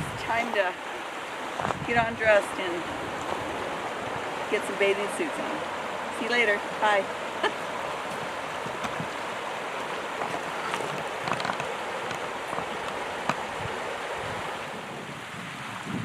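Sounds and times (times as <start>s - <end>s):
stream rushing over its bed: 0.0s - 16.0s
water clicks and splashes: 6.8s - 13.7s.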